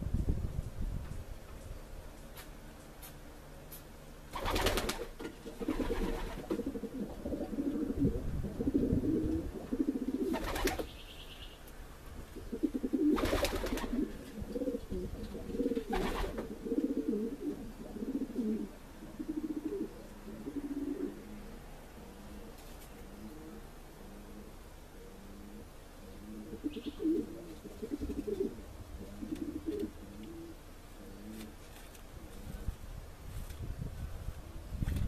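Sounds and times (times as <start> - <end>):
pigeons cooing: 4.4 - 11.0, 12.2 - 31.6.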